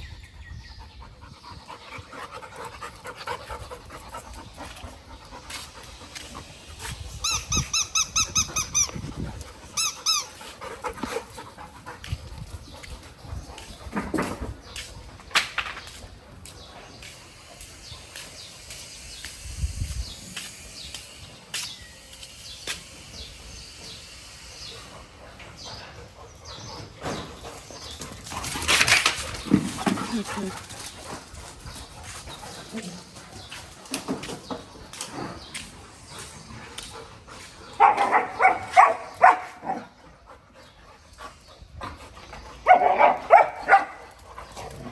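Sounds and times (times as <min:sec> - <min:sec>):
small birds chirping: 0:00.0 - 0:44.9
dog barking and yelping: 0:37.8 - 0:39.8, 0:42.6 - 0:44.0.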